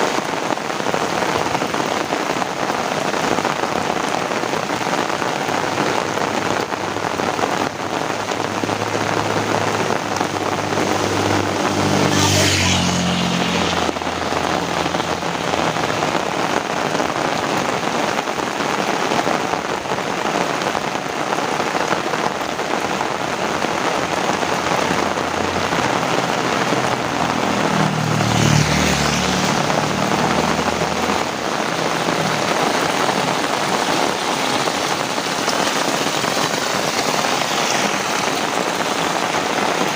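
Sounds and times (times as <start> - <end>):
heavy rain: 0.0 - 39.9
vehicles passing on wet road: 0.0 - 39.9
tyres swishing on water: 24.1 - 39.9.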